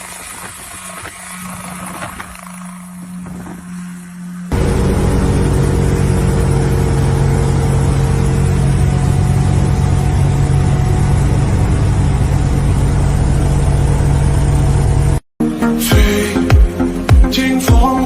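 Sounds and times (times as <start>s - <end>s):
toy helicopter rotor whirring: 0.0s - 4.6s.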